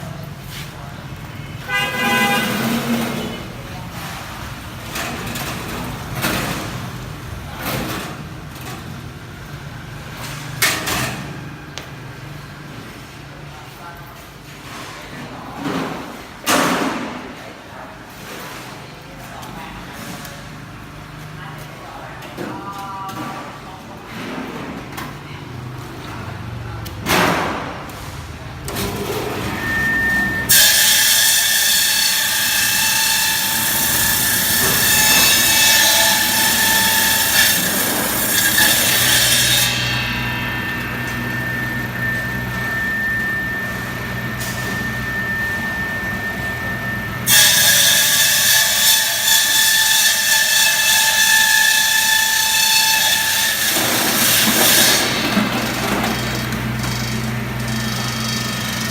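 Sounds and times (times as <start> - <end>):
motor hum and whine: 33.4 - 47.3.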